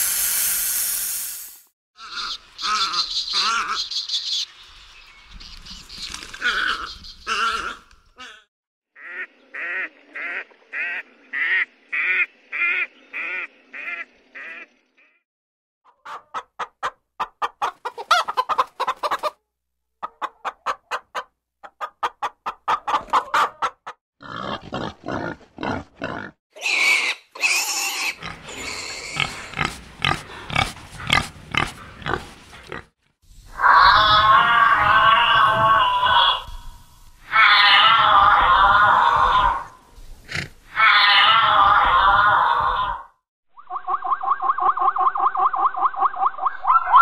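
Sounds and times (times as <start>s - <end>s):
repeating pitched animal call: 2.0s - 4.2s, 33.5s - 47.0s
loud animal calls: 33.5s - 43.1s.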